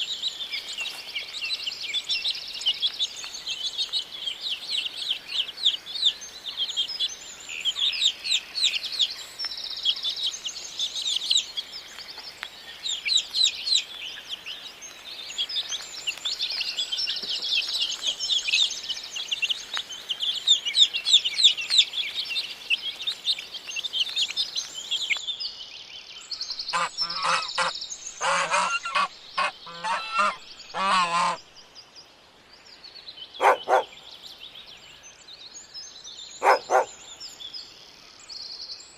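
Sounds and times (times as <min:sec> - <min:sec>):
small birds chirping: 0:00.0 - 0:38.9
waterfowl honking: 0:26.7 - 0:31.4, 0:33.4 - 0:33.9, 0:36.4 - 0:36.9.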